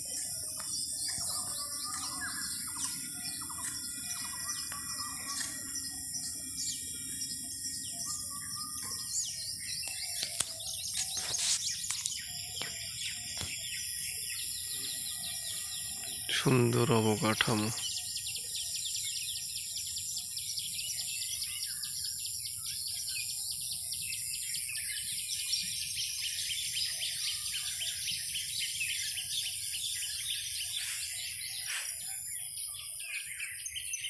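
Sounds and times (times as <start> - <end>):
steady high-pitched hum: 0.0 - 16.3
birds chirping and calling: 0.0 - 34.0.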